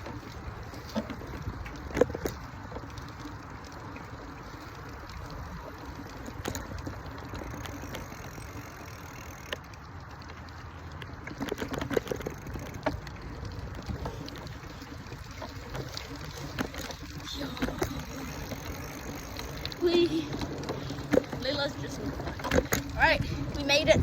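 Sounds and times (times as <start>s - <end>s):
bicycle tyres rumbling: 0.0s - 24.0s.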